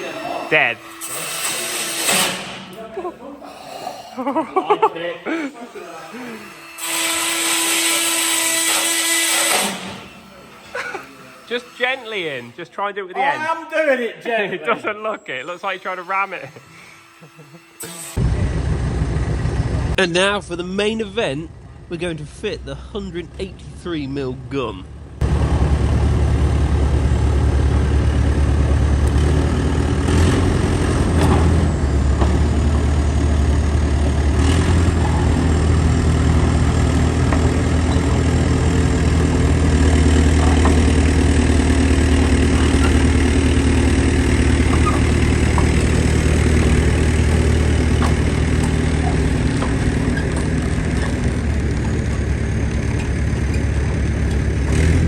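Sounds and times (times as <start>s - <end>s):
heavy vehicle engine idling: 18.2s - 55.0s
knocks: 44.4s - 52.3s.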